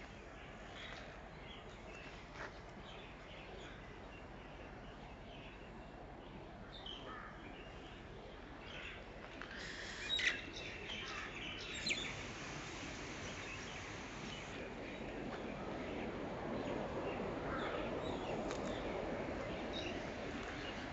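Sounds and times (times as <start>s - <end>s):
birds chirping: 10.1s - 12.3s.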